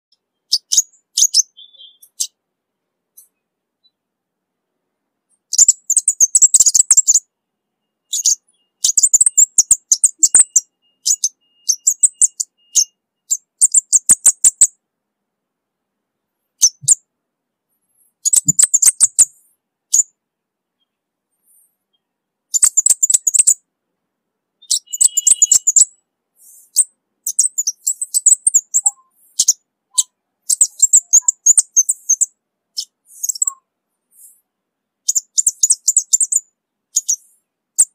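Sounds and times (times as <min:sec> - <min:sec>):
bird singing high ticking chips: 0:00.1 - 0:02.4, 0:05.4 - 0:07.3, 0:08.0 - 0:14.7, 0:16.6 - 0:17.0, 0:18.1 - 0:20.1, 0:22.5 - 0:23.6, 0:24.6 - 0:37.9.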